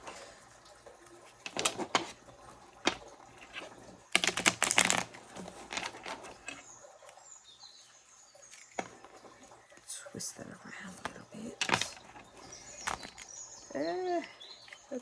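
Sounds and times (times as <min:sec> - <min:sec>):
cards being shuffled: 0:01.3 - 0:06.6, 0:11.0 - 0:13.3.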